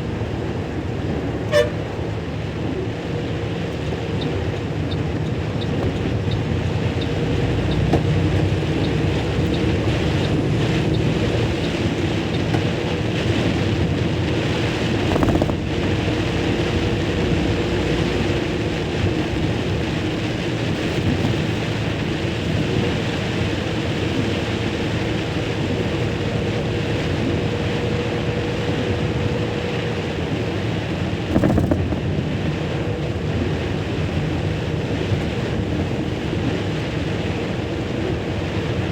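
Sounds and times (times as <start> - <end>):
vehicle road noise: 0.0 - 38.9
wind rushing over microphone: 0.0 - 38.9.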